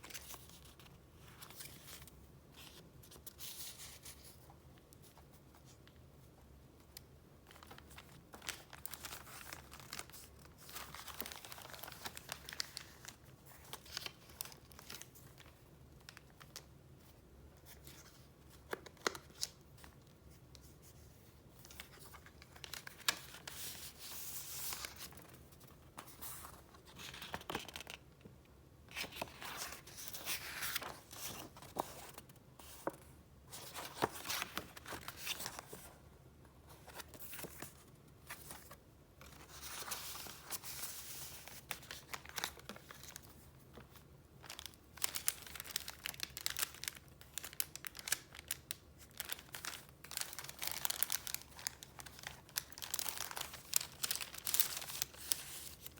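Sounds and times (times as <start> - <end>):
paper rustling and crinkling: 6.8 - 16.7, 17.6 - 28.0, 28.9 - 55.9
paper crackles: 44.4 - 55.9.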